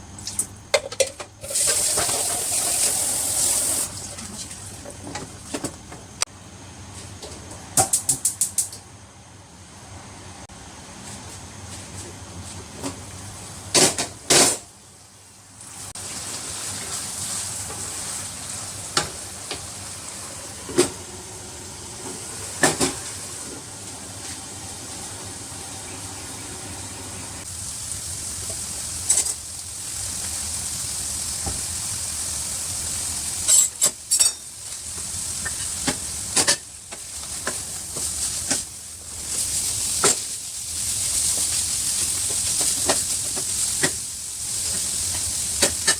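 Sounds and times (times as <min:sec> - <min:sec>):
food sizzling in a pan: 0:01.4 - 0:04.8, 0:15.5 - 0:20.5, 0:24.3 - 0:45.9.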